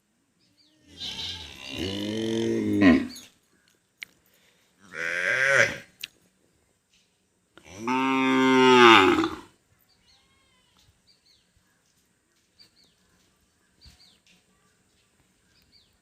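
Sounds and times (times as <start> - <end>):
cow mooing: 7.8 - 9.5.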